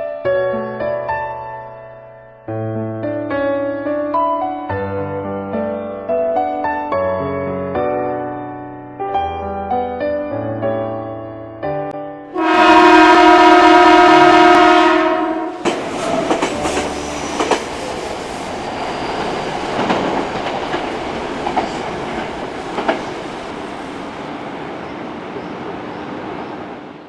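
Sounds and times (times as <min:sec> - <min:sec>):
train horn blast: 0:12.3 - 0:17.2
train running on rails: 0:12.4 - 0:27.0.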